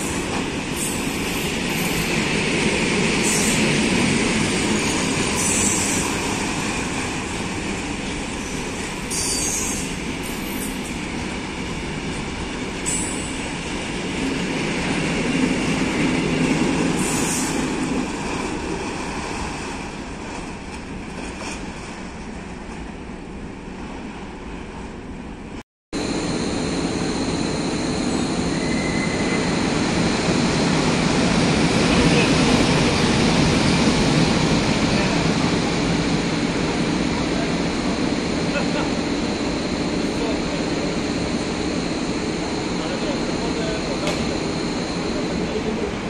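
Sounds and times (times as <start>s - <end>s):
freight train rumbling past: 0.0s - 46.0s
train wheel squeals: 4.8s - 6.1s, 8.4s - 11.0s, 28.1s - 29.8s
electric locomotive running: 26.0s - 46.0s.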